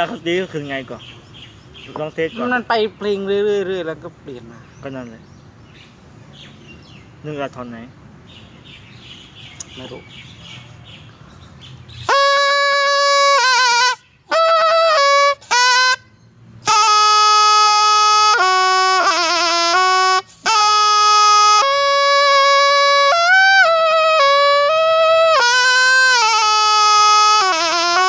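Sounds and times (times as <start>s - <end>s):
reed pipe melody: 11.9s - 28.0s.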